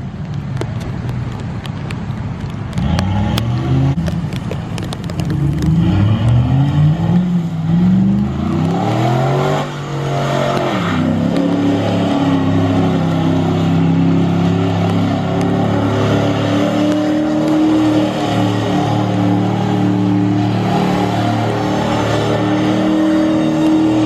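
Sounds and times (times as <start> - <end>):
pickup truck engine revving: 5.2 - 24.0.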